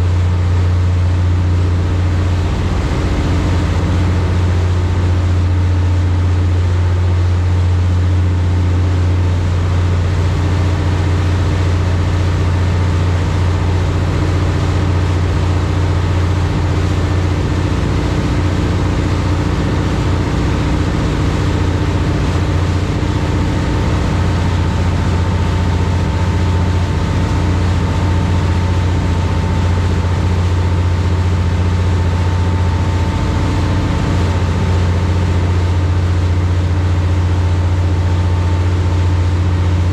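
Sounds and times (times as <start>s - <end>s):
boat engines droning: 0.0s - 39.9s
rushing water noise: 1.5s - 7.2s, 9.5s - 39.9s
faint high whine: 1.6s - 6.1s.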